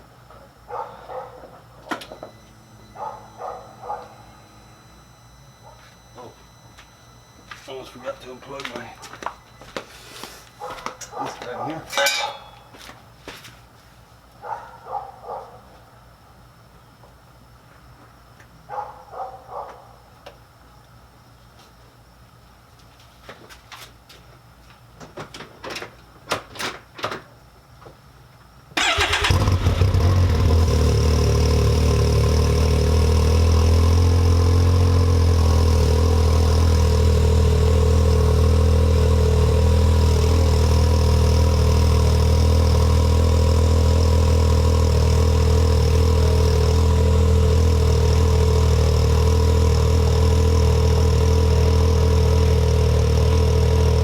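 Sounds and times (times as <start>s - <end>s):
engine starting and idling: 28.8s - 36.4s.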